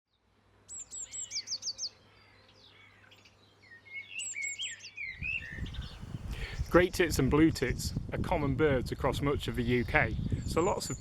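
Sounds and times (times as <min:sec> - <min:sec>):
lower bird chirps: 0:00.1 - 0:07.7
songbird singing high notes: 0:00.7 - 0:06.9.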